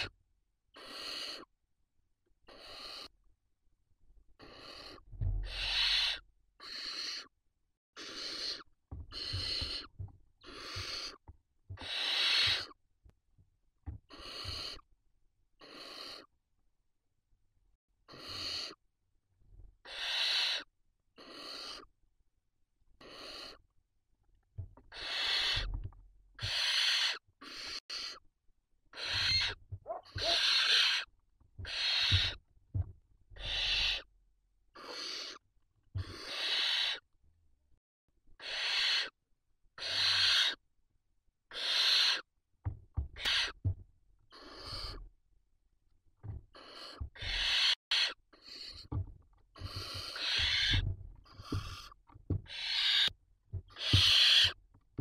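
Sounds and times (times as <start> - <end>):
owl chicks hissing begging calls: 0.8 - 1.5, 2.5 - 3.1, 4.4 - 7.3, 8.0 - 11.2, 11.8 - 12.8, 14.1 - 14.8, 15.6 - 16.3, 18.1 - 18.8, 19.8 - 21.9, 23.0 - 23.6, 24.9 - 25.7, 26.4 - 28.2, 28.9 - 32.4, 33.4 - 34.1, 34.8 - 35.4, 36.0 - 37.0, 38.4 - 39.2, 39.8 - 40.6, 41.5 - 42.3, 43.2 - 43.6, 44.3 - 45.0, 46.5 - 49.0, 49.6 - 53.1, 53.7 - 54.6.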